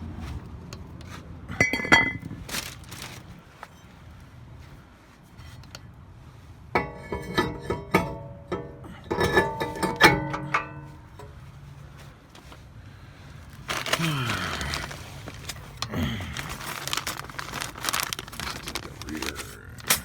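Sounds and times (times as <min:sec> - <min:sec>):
small metal parts clinking: 0:14.7 - 0:20.0.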